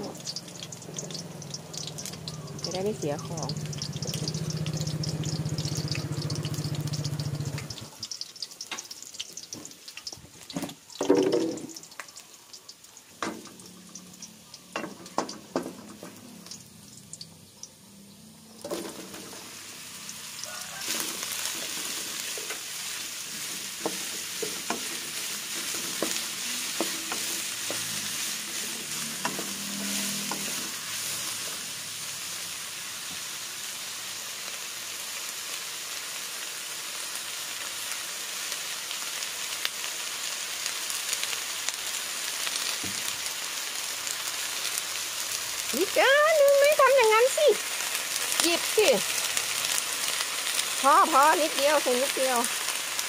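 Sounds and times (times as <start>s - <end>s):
mushrooms sizzling in hot oil: 0.0s - 53.0s
spatula stirring in wok: 20.4s - 32.2s.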